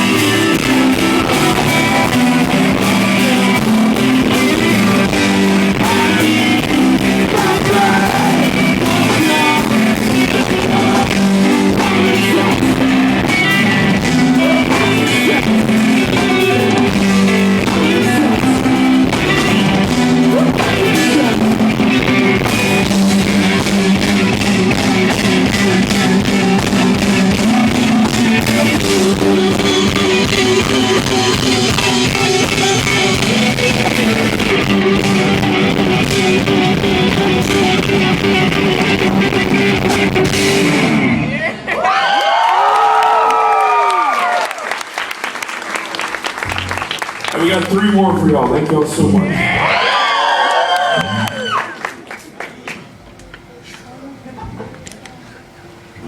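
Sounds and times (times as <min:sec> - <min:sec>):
person singing: 0:00.0 - 0:40.6
drum kit: 0:00.0 - 0:41.3
electric guitar: 0:00.0 - 0:47.4.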